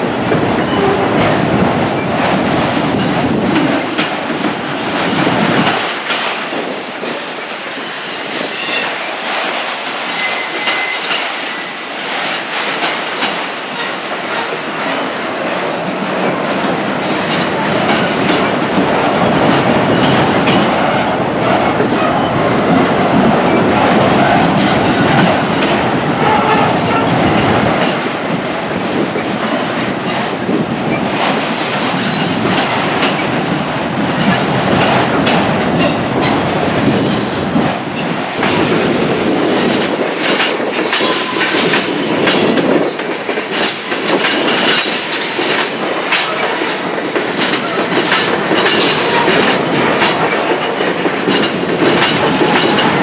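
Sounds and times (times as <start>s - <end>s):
train cars rumbling past: 0.0s - 53.0s
wheels clattering over rail joints: 28.9s - 53.0s.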